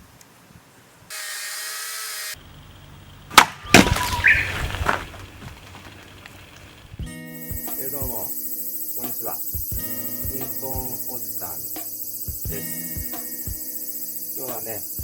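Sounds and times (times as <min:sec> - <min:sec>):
firewood knocking and cracking: 0:03.3 - 0:06.9
steady hiss: 0:07.4 - 0:15.0.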